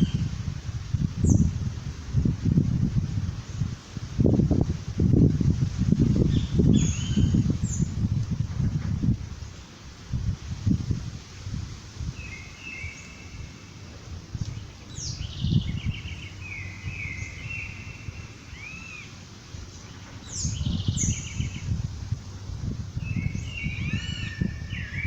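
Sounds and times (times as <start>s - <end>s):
songbirds chirping: 6.0s - 8.4s, 9.0s - 10.0s, 12.0s - 25.0s.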